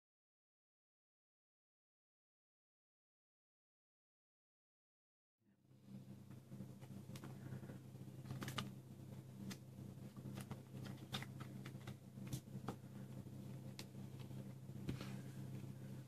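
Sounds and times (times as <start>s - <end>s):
steady low hum: 5.6s - 16.0s
card edges clicking and snapping: 8.2s - 8.8s, 9.4s - 12.8s.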